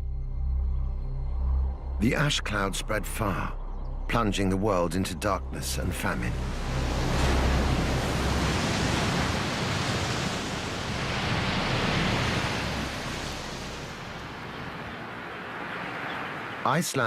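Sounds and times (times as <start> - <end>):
loud rushing noise: 6.3 - 15.8.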